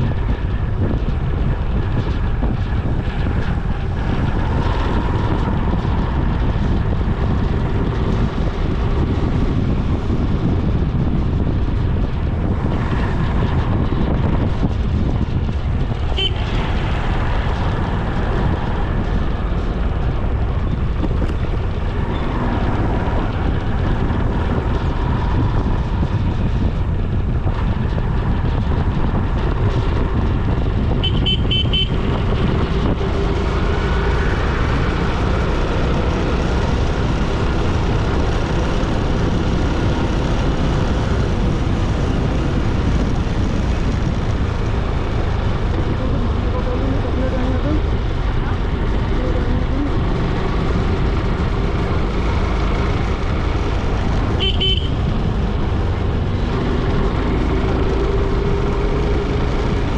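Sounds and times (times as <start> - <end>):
motorcycle riding road noise: 0.0 - 59.9
vehicle horn toot: 16.1 - 16.4, 31.0 - 32.0, 54.4 - 55.0.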